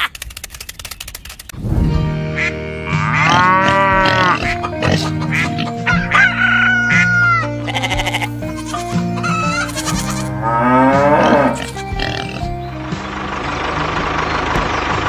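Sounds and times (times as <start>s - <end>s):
background music sustained notes: 1.6s - 15.0s
sheep bleating: 2.4s - 12.5s
farm animal calls: 2.4s - 14.9s.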